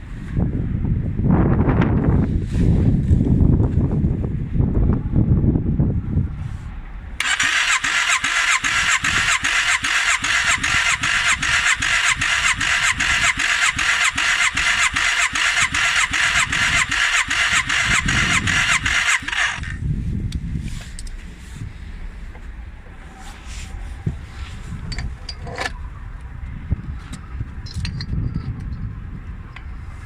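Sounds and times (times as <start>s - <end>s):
wind rumble on microphone: 0.0s - 30.0s
electric starter cranking engine: 7.2s - 19.8s.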